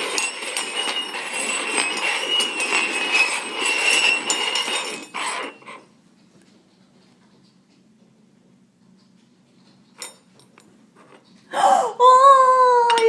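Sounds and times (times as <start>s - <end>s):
cups scraping on tabletop: 0.0s - 5.9s.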